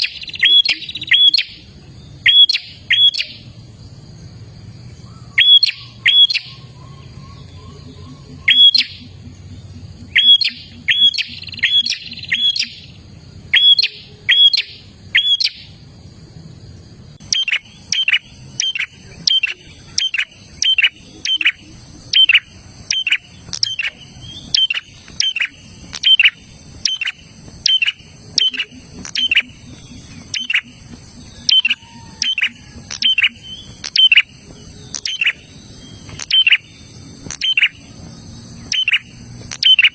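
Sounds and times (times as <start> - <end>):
faint low hum: 0.0 - 39.9
bird chip notes: 17.2 - 37.9.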